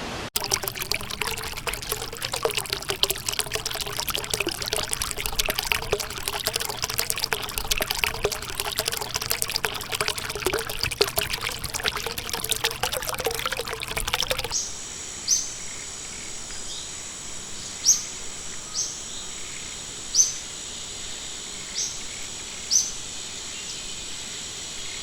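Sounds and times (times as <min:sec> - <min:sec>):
river water trickling and splashing: 0:00.4 - 0:14.6.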